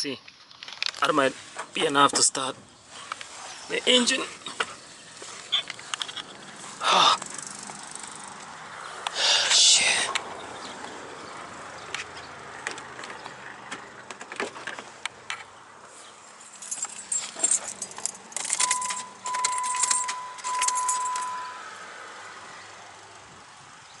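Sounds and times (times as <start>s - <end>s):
car keys jangling: 5.5s - 6.6s, 16.2s - 21.7s
electronic chime tone: 18.6s - 21.7s.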